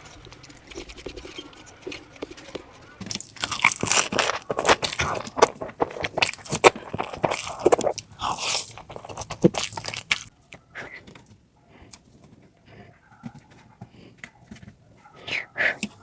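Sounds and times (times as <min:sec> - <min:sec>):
crisp crunching bites: 0:00.0 - 0:10.3
wet chewing: 0:00.0 - 0:11.1.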